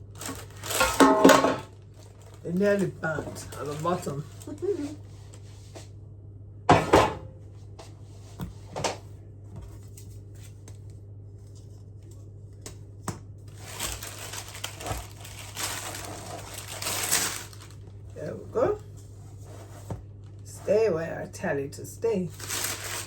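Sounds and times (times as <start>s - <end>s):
crinkling rustle: 0.0s - 5.5s, 13.4s - 20.7s, 22.3s - 23.0s.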